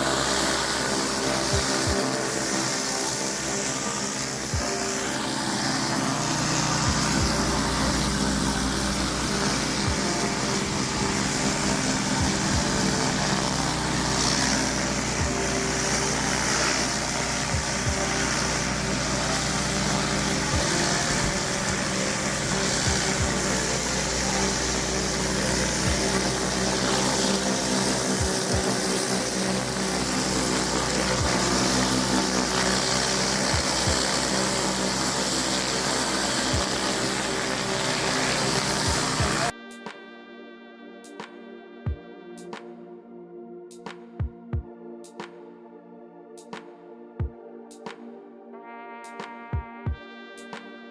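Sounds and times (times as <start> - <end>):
high-pressure water spray hiss: 0.0 - 39.5
petrol engine running under load: 0.0 - 39.5.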